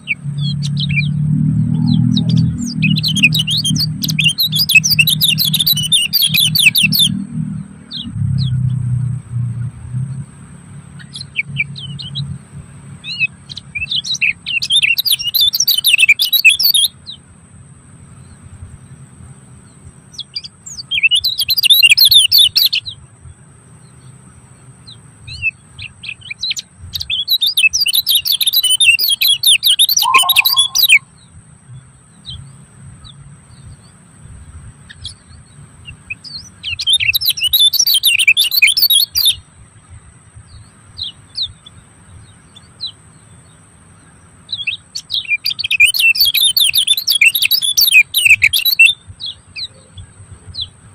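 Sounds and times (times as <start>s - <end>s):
songbird twittering: 0.0s - 8.8s, 10.9s - 17.2s, 19.6s - 23.0s, 24.8s - 31.3s, 35.9s - 39.4s, 40.5s - 50.8s
thin steady high tone: 29.9s - 31.1s.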